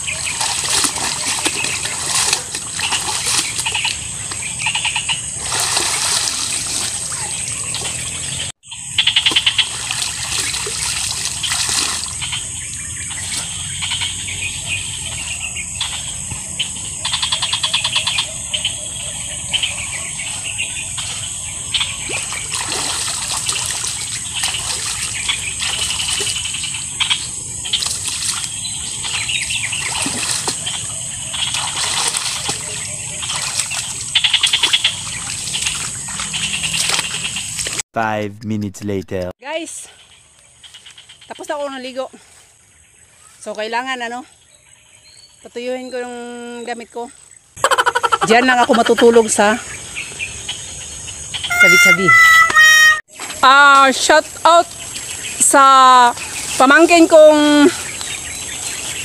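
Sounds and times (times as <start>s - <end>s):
muddy water splashing: 0.0s - 16.1s, 18.8s - 37.8s, 51.4s - 59.0s
trilling animal calls: 51.3s - 53.1s.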